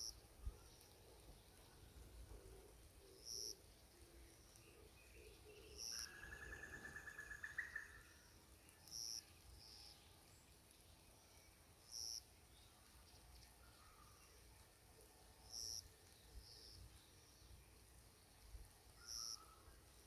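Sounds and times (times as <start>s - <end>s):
bird chirping: 3.0s - 14.3s, 19.0s - 19.8s
bird trill: 5.2s - 8.2s.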